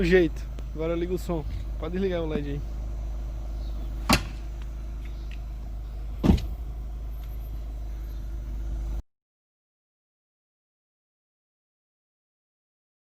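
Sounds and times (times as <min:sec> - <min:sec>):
steady low hum: 0:00.0 - 0:09.0
sharp pops: 0:04.0 - 0:05.4.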